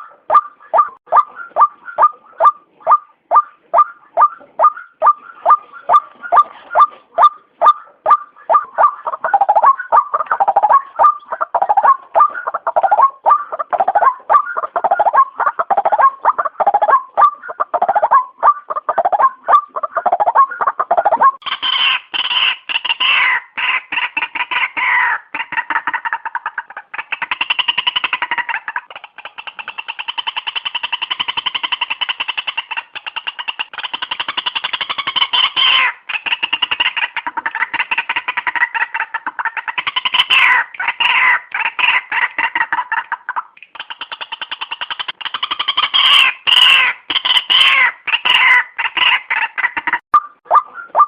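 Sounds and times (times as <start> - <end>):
waterhen calling: 0.0 - 51.0.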